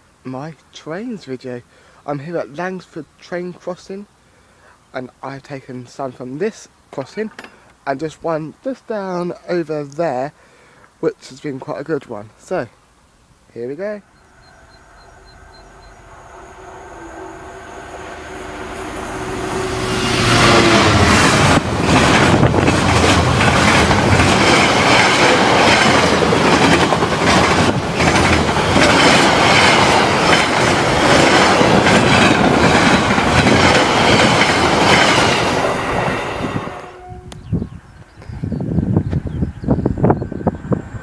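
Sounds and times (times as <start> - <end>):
freight train passing: 13.8 - 37.5, 39.8 - 41.0
wheel clacks on rails: 20.9 - 35.8.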